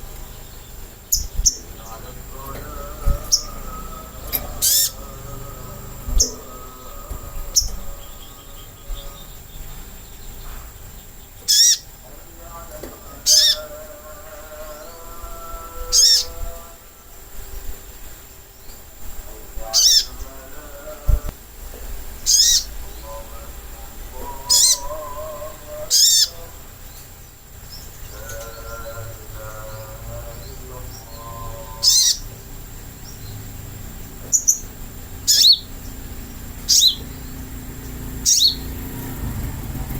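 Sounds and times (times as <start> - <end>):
high-pitched trilled bird calls: 0.0 - 12.0, 13.2 - 13.8, 15.8 - 16.4, 19.7 - 20.3, 22.2 - 23.1, 24.1 - 39.0
soft low bird warbling: 1.1 - 9.4.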